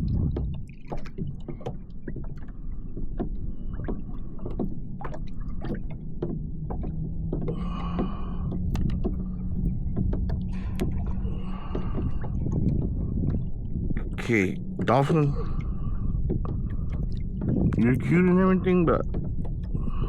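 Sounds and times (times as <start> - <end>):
low rumble: 0.0 - 20.0
steady low hum: 0.0 - 20.0
water lapping against kayak hull: 0.0 - 20.0
small knocks and clicks: 0.2 - 13.5.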